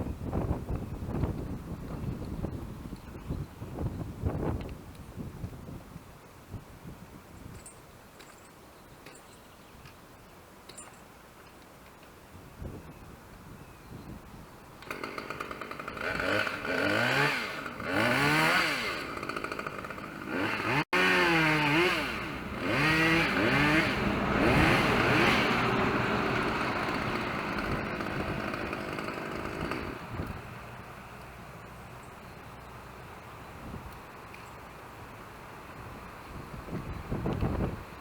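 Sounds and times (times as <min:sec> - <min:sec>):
chainsaw revving: 0:14.8 - 0:30.9.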